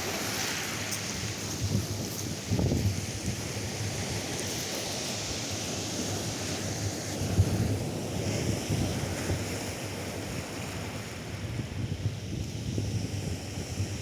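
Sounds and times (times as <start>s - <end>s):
wind buffeting microphone: 0.0s - 4.3s
surf washing on beach: 0.0s - 14.0s.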